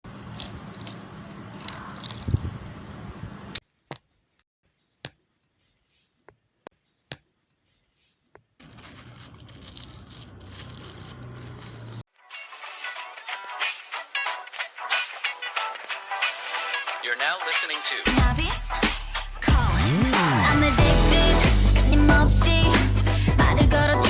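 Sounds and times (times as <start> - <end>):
paper rustling and scraping: 7.6 - 12.1.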